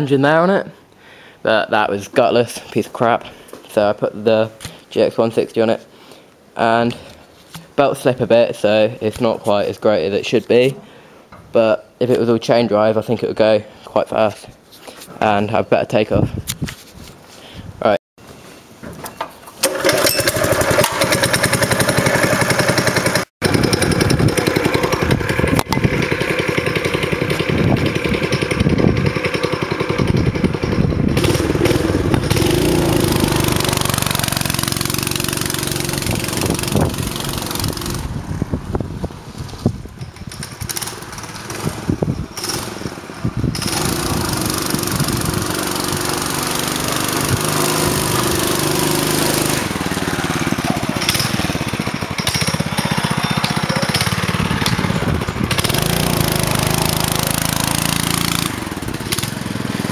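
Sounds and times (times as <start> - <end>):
minibike engine running: 19.6 - 38.2, 40.1 - 59.9.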